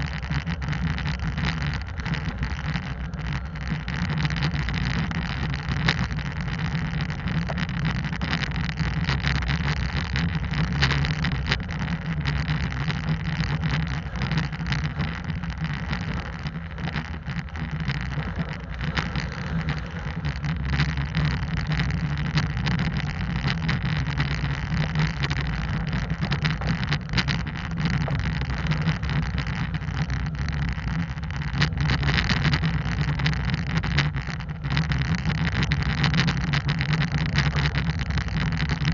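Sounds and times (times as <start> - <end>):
clicks and knocks from rough track: 0.0 - 38.9
wind on microphone: 0.0 - 38.9.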